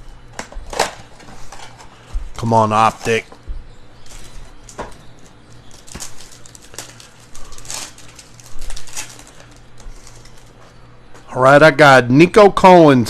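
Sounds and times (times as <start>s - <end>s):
card wrappers rustling and crinkling: 0.6s - 3.4s, 4.0s - 10.8s.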